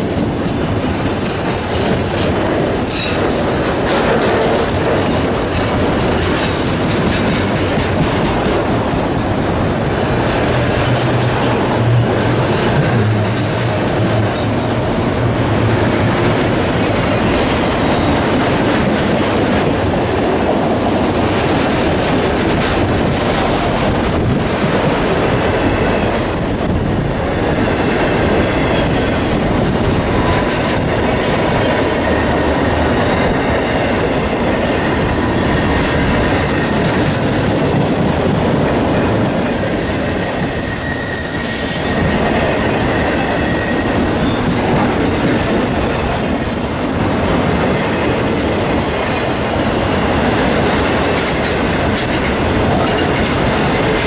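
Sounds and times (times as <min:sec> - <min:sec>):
train wheels rumbling on rails: 0:00.0 - 0:54.0
high-pitched wheel squeals: 0:00.2 - 0:11.4, 0:37.8 - 0:49.6.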